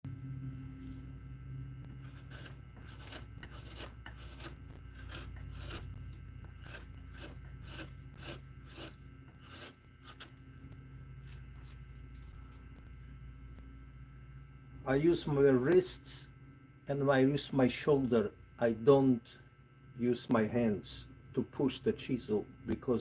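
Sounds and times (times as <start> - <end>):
steady low hum: 0.0 - 23.0
chisel slicing wood: 2.0 - 5.8.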